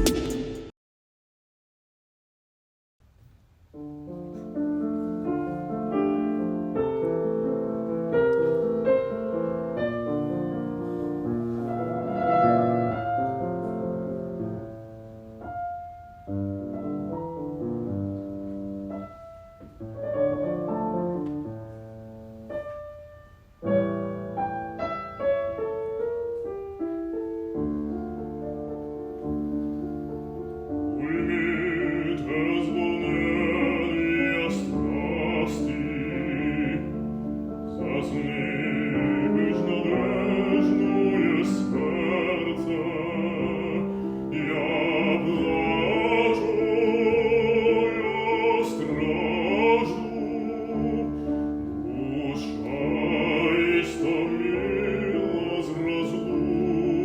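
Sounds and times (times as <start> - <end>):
classical piano: 3.7 - 57.0
person singing: 30.9 - 37.1, 37.7 - 57.0.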